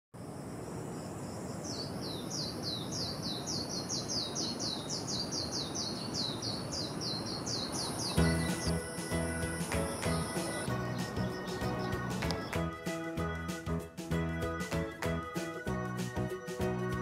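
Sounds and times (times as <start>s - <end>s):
low outdoor background noise: 0.2s - 12.6s
steady high hiss: 7.6s - 12.6s
music: 8.2s - 17.0s.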